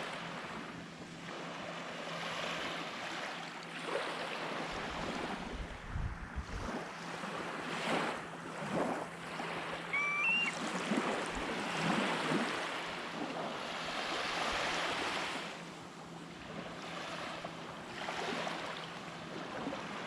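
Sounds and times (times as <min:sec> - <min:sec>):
small waves washing onto beach: 0:00.0 - 0:20.0
wind rumble on microphone: 0:04.4 - 0:14.8
bird whistled call: 0:09.9 - 0:10.6.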